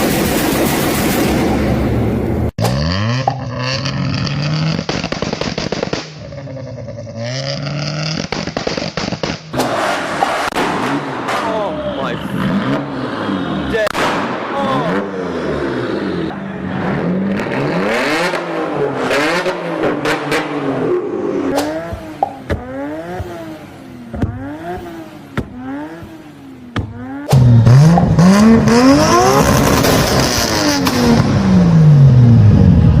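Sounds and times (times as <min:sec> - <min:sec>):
car exhaust revving: 0:00.0 - 0:33.0
exhaust pops: 0:02.6 - 0:06.7, 0:07.5 - 0:11.7, 0:24.1 - 0:31.4
car engine accelerating hard: 0:14.8 - 0:33.0.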